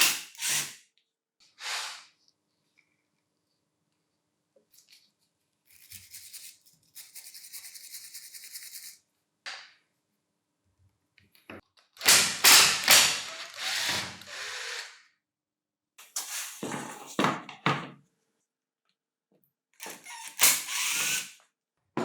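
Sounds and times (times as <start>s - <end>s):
harsh scraping or brushing: 1.6s - 2.2s.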